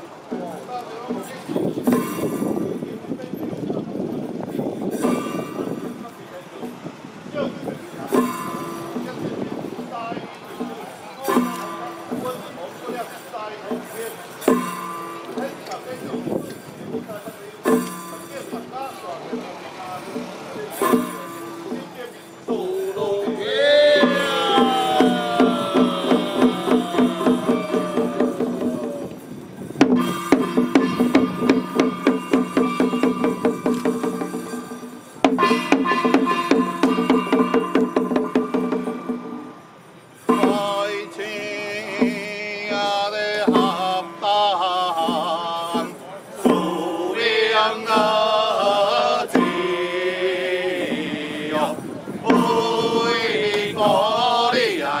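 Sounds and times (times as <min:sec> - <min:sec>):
rapid percussion strokes: 0:00.0 - 0:55.0
ritual chanting: 0:17.3 - 0:55.0
musical accompaniment: 0:17.6 - 0:55.0.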